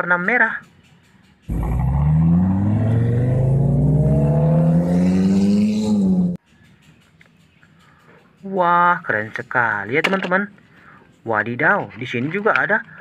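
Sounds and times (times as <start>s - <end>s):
sports car engine accelerating: 1.5s - 6.4s.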